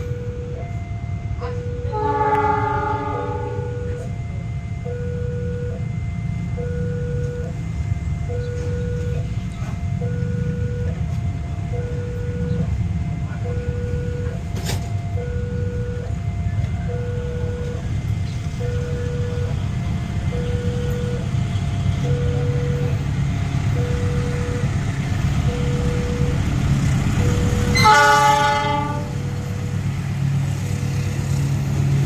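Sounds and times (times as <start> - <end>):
two-tone crossing alarm: 0.0 - 31.4
steady low rumble: 3.2 - 27.8.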